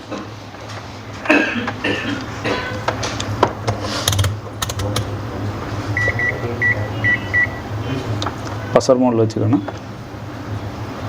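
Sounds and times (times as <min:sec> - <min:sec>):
probe handling clicks: 0:04.0 - 0:05.1
multimeter continuity beeps: 0:05.9 - 0:08.0.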